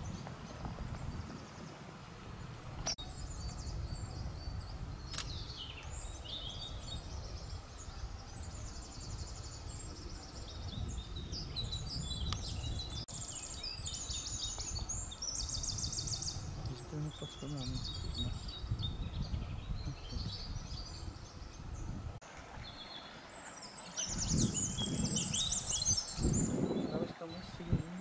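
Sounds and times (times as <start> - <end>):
songbirds trilling and chirping: 0.0 - 28.0
sharp clicks: 5.1 - 5.4.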